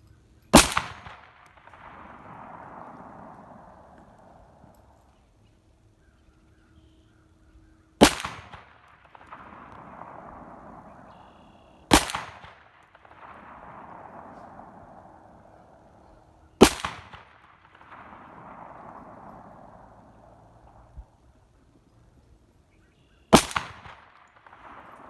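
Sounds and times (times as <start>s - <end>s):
pistol shots with echo: 0.5s - 4.9s, 8.0s - 20.9s, 23.3s - 25.0s.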